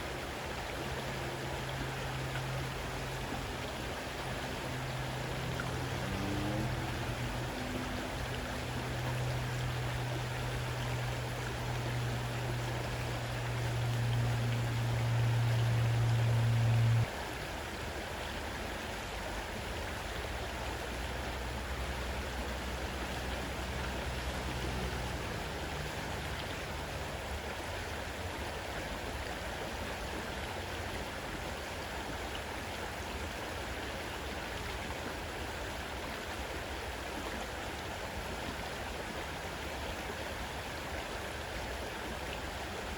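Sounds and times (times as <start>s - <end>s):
deep steady hum: 0.0s - 17.1s
faint low hum: 0.0s - 17.2s
river water rushing: 0.0s - 42.9s.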